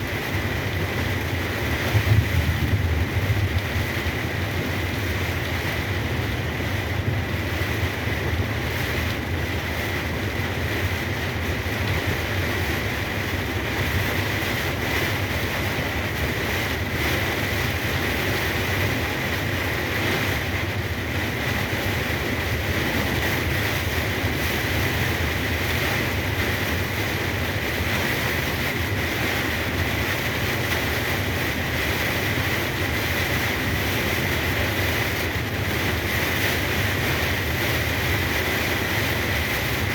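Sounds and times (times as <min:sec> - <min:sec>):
rain and tyre spray hiss: 0:00.0 - 0:39.9.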